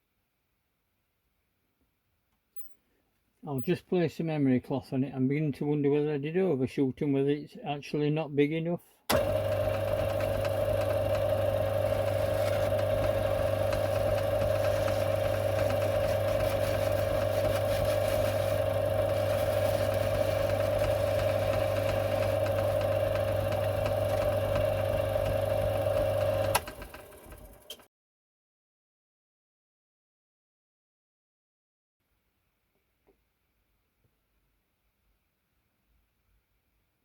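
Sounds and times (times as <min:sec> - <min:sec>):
lathe humming and whining: 0:09.1 - 0:27.6.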